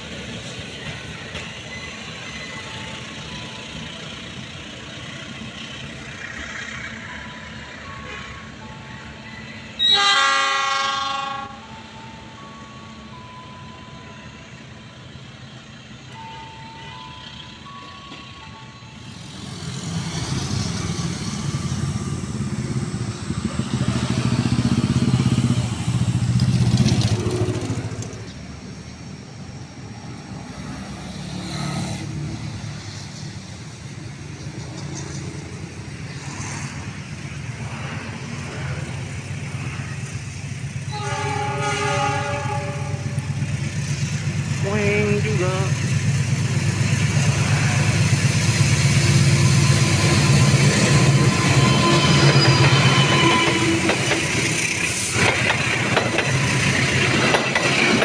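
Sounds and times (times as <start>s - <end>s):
diesel locomotive rumble: 0.0s - 58.0s
train rumbling along track: 0.0s - 58.0s
multi-tone train horn: 9.7s - 13.1s, 40.8s - 43.4s.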